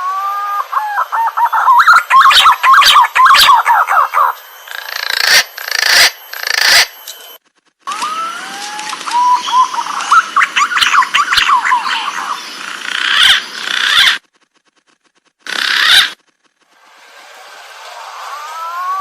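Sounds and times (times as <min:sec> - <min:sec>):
pigeon upward gliding whistles: 0:00.0 - 0:04.4, 0:07.9 - 0:12.4, 0:18.1 - 0:19.0
quick bird chirps: 0:09.0 - 0:16.5.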